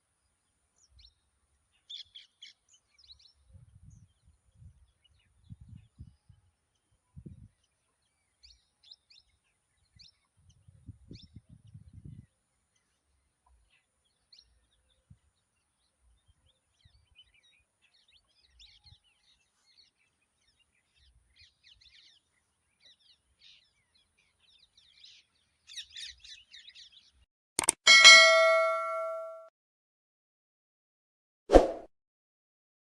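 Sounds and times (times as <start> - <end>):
metallic ding ringing: 27.6 - 29.5
sharp click: 27.6 - 29.5.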